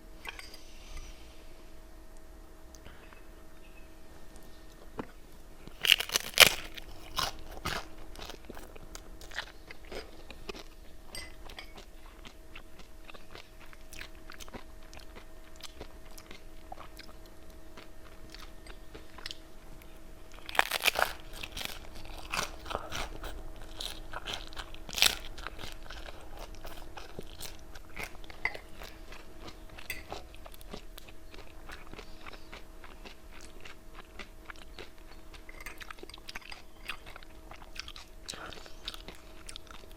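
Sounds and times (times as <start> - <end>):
crunchy chips being chewed: 5.0 - 39.9.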